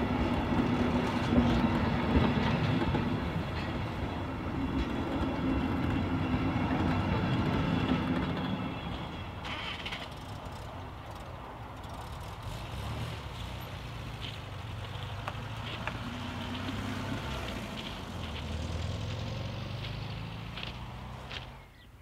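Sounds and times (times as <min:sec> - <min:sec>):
car engine idling and pulling away: 0:08.4 - 0:21.9.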